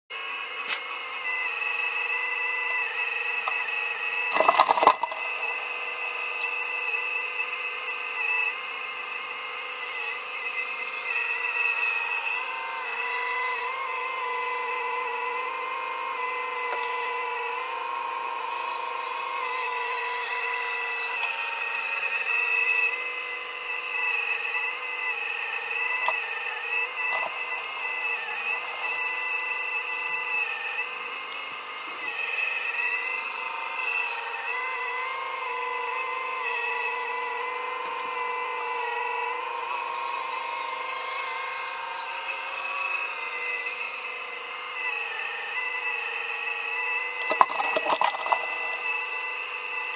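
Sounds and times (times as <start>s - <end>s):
heavy machine engine whine: 0.2s - 45.8s.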